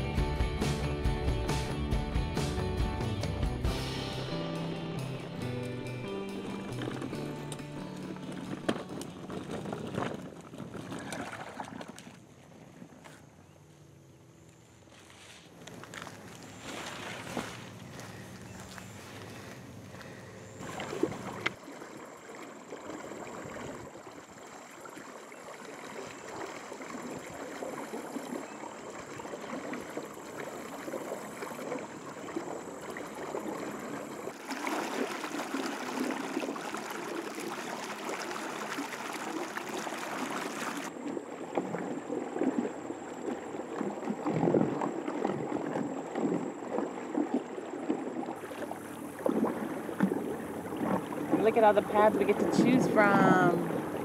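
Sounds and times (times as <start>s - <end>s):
water gurgling along boat hull: 5.0s - 13.6s, 15.6s - 54.0s.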